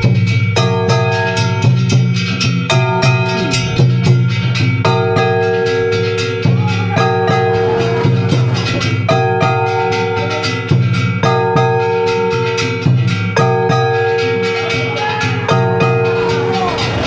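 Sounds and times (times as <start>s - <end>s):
drums struck in steady rhythm: 0.0s - 17.0s.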